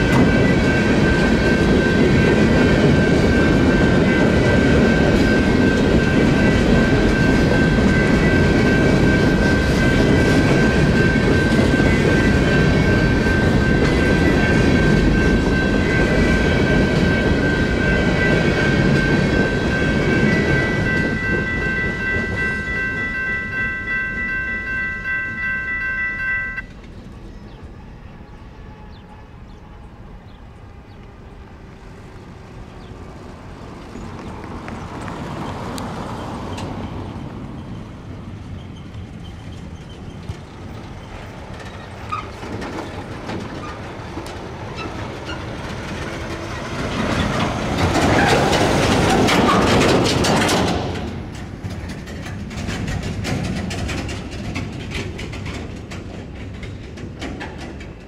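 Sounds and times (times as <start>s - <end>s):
electronic crossing bells: 0.0s - 26.7s
diesel freight train rumbling: 0.0s - 58.0s.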